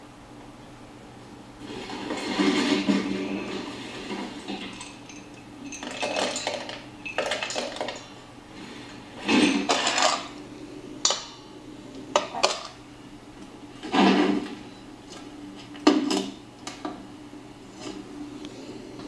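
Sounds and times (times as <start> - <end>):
dishes clattering: 1.7 - 10.4, 13.8 - 14.6
bowl clinking: 4.5 - 8.2.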